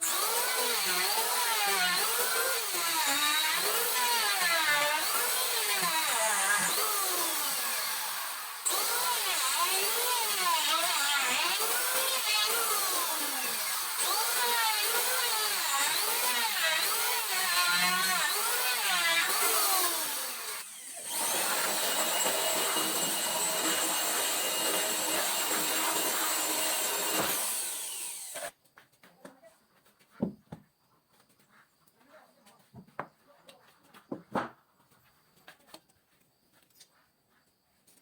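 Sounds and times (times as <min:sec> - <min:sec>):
electric saw cutting wood: 0:00.0 - 0:28.5.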